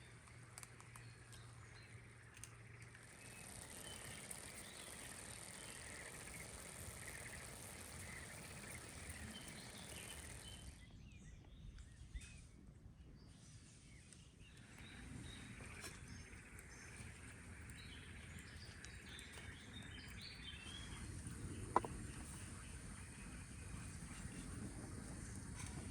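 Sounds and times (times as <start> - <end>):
small clicks: 0.0 - 10.9.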